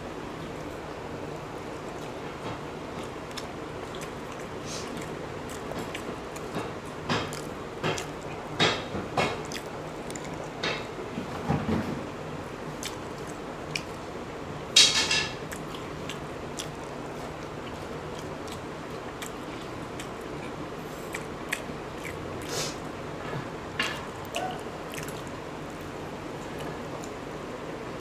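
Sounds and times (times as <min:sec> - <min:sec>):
chewing boiled eggs: 0:00.1 - 0:28.0.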